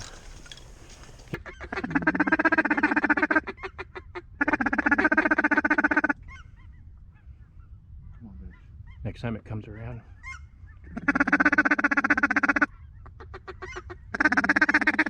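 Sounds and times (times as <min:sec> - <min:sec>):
goose clucks: 0:00.0 - 0:01.4, 0:10.9 - 0:15.0
goose honking: 0:00.0 - 0:01.4.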